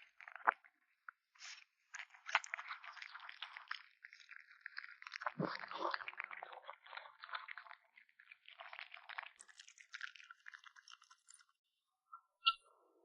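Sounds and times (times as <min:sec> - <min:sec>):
kitten chewing raw meat: 0:02.0 - 0:11.4.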